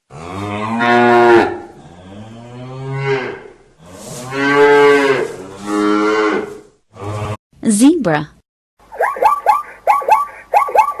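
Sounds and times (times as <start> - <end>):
cow mooing: 0.1 - 7.4.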